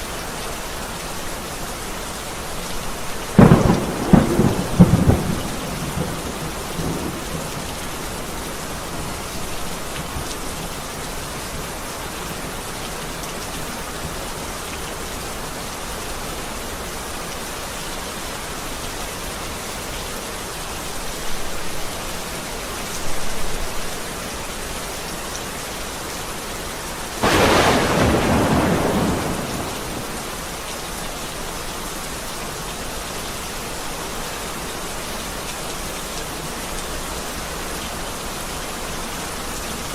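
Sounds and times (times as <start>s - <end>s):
heavy rain: 0.0s - 39.9s
loud thunderclap: 3.4s - 7.7s, 27.2s - 30.4s
thunder rumbling: 3.4s - 8.4s, 27.2s - 30.6s.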